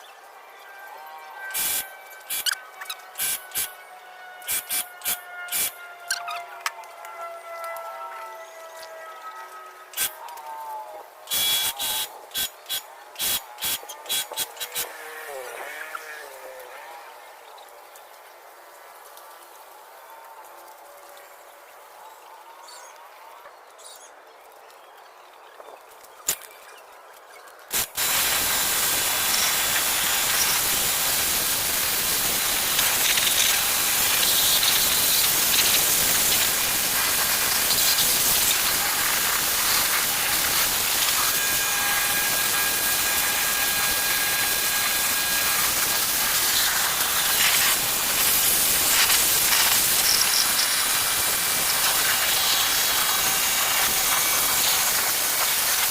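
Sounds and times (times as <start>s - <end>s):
pressure washer jet hissing: 1.6s - 2.5s, 3.2s - 3.8s, 4.5s - 5.8s, 11.3s - 14.9s, 27.8s - 55.9s.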